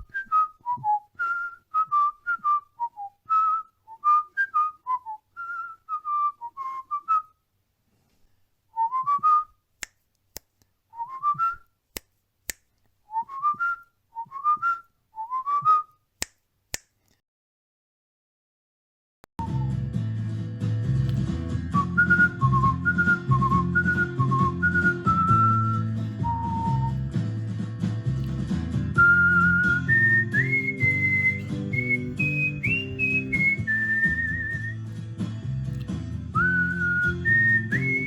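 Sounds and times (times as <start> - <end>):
cockatiel whistling: 29.0 - 34.8, 36.4 - 38.0.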